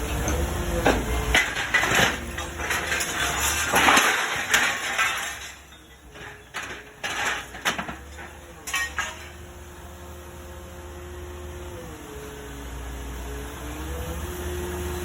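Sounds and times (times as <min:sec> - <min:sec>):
metal clanking and clinking: 0:00.0 - 0:09.5.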